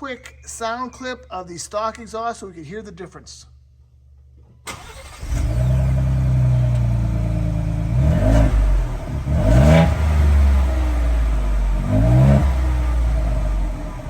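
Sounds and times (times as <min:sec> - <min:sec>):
engine idling and revving: 0:04.7 - 0:14.0.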